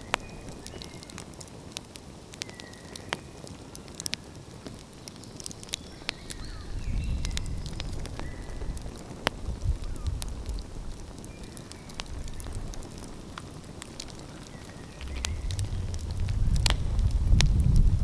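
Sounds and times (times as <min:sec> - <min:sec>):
wood fire crackling and popping: 0:00.0 - 0:18.0
low rumble: 0:14.9 - 0:18.0.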